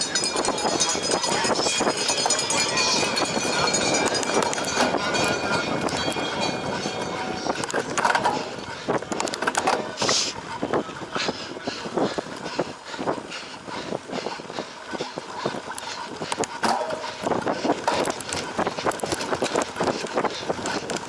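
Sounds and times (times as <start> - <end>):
bike chain and frame clattering: 0.0 - 9.9, 15.6 - 21.0
tyres on dirt: 1.7 - 21.0.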